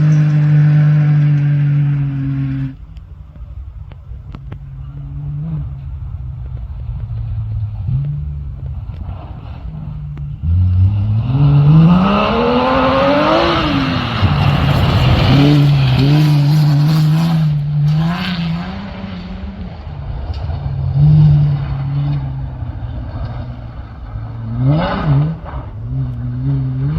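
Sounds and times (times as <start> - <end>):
rally car engine accelerating: 0.0 - 26.9
rush of flung gravel: 12.4 - 17.4.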